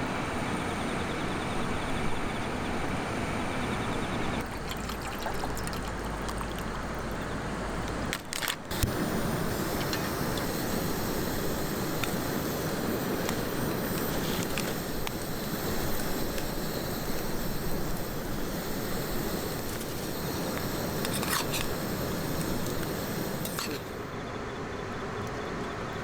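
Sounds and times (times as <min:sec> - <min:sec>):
fire crackles: 0:04.4 - 0:24.1
wood fire burning: 0:04.4 - 0:24.1
high hiss: 0:08.7 - 0:24.1.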